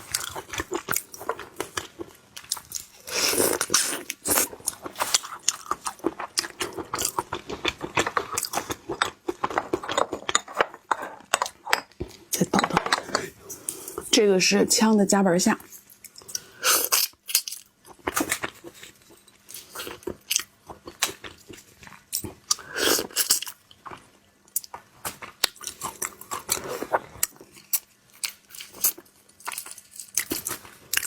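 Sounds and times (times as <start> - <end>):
shrimp shell crunching: 16.0 - 18.5.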